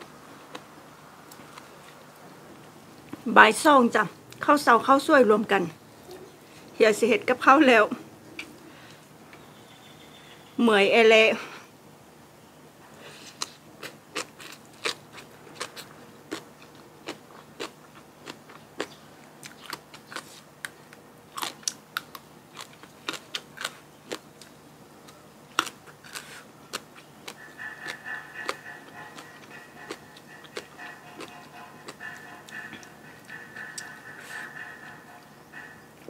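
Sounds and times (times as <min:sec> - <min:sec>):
person chewing crisp food: 0:00.0 - 0:02.4, 0:13.1 - 0:36.0
faint music: 0:22.5 - 0:36.0.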